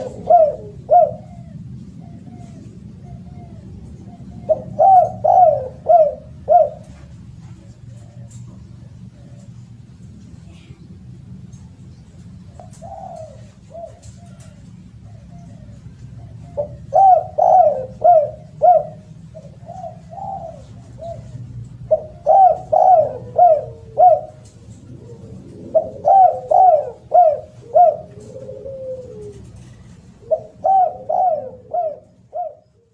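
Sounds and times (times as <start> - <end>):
dove cooing: 0.0 - 32.9
faint low hum: 0.0 - 32.9.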